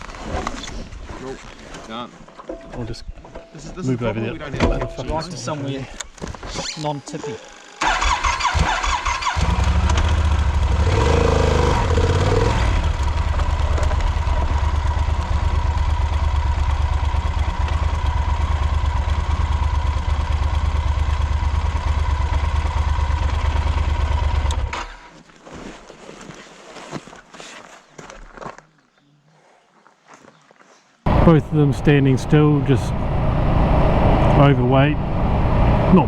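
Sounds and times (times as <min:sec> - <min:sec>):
motorcycle engine running: 0:09.3 - 0:24.7, 0:31.1 - 0:36.0.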